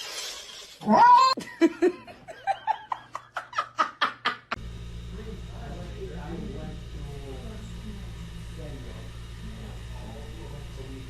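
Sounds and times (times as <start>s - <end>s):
person laughing: 1.1s - 4.6s
low steady hum: 4.6s - 11.0s.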